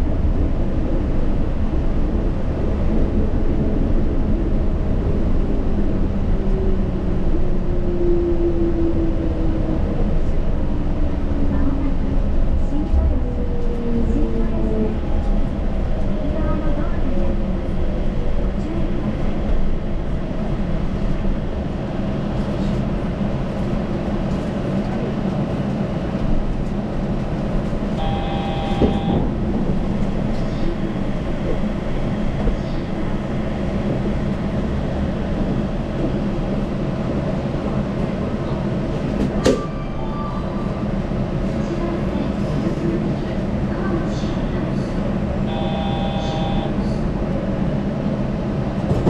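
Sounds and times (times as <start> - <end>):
train running rumble: 0.0 - 49.0
short electronic tone: 28.0 - 29.2.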